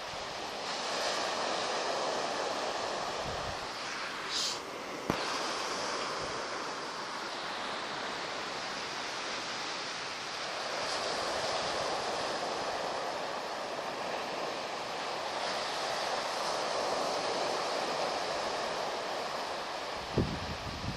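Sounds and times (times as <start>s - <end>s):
sea surf breaking: 0.0s - 20.9s.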